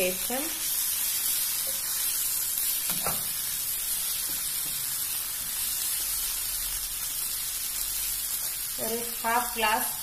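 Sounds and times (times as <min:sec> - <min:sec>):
masala sizzling in a frying pan: 0:00.0 - 0:10.0.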